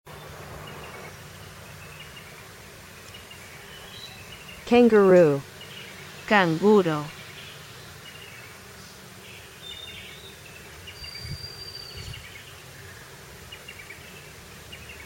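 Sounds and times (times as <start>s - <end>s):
steady background hiss: 0.1s - 15.0s
bird chirps: 9.4s - 12.6s.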